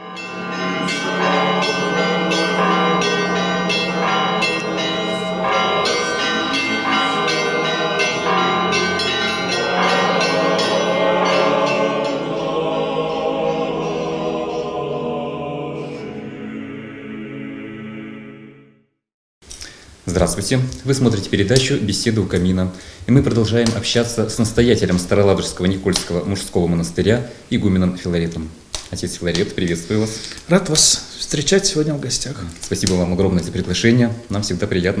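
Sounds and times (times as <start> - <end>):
church bells ringing: 0.0 - 15.2.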